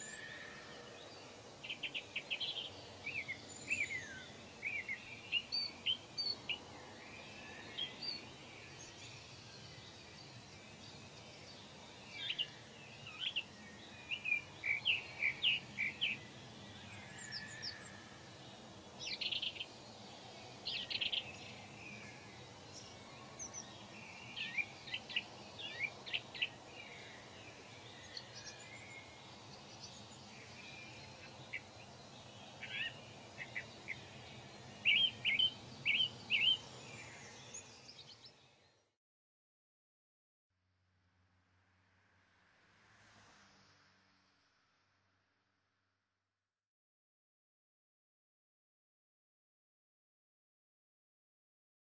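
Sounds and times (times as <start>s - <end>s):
small birds chirping: 0.0s - 38.9s
faint low background noise: 0.0s - 39.0s, 40.6s - 46.4s.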